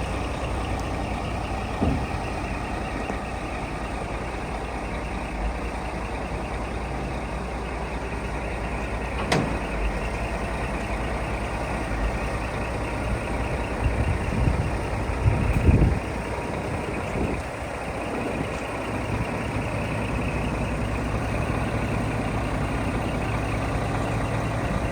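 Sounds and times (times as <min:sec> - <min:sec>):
diesel engine idling: 0:00.0 - 0:24.9
low thumps: 0:01.6 - 0:03.2.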